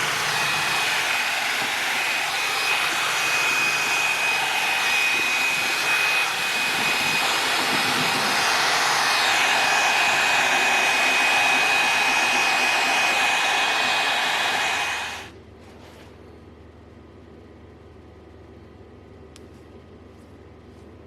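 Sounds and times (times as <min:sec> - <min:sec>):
electric fan motor whining: 0:00.0 - 0:15.3.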